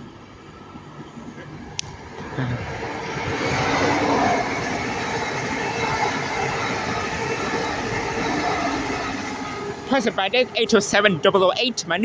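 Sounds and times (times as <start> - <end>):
electric train passing: 0.0 - 12.0.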